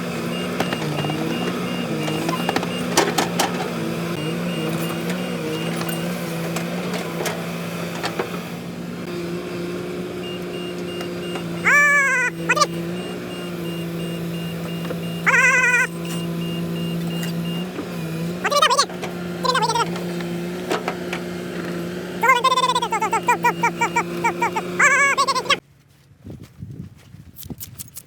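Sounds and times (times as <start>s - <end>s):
diesel engine running: 0.0s - 25.6s
warbling electronic tones: 15.1s - 16.6s.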